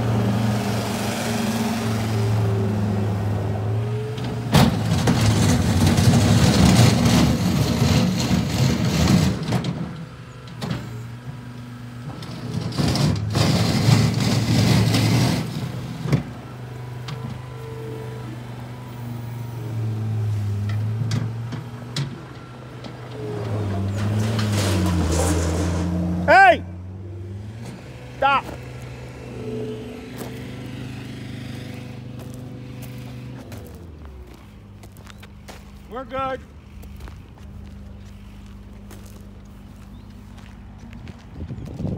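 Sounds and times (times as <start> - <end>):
loader diesel engine running: 0.0 - 41.9.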